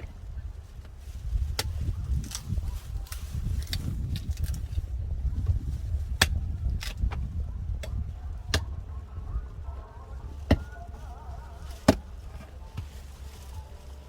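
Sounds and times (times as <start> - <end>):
steady low rumble: 0.0 - 14.0
sharp wooden knocks of firewood: 6.1 - 8.7.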